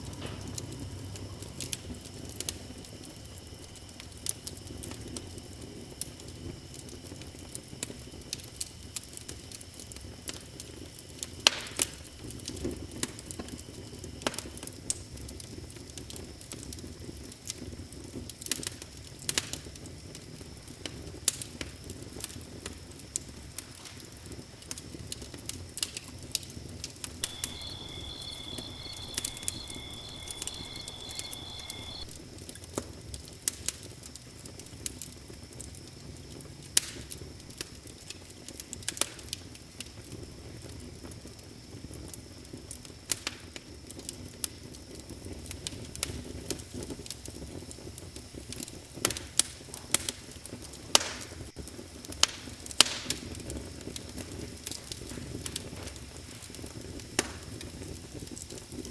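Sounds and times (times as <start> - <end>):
wood fire crackling and popping: 0.0 - 58.9
high trill: 27.2 - 32.1.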